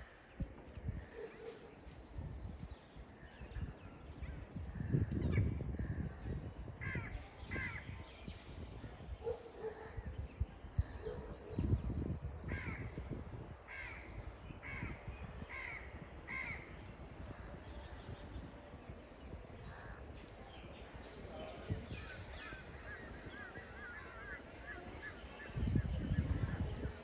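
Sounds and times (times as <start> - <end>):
crows cawing: 13.7 - 16.7.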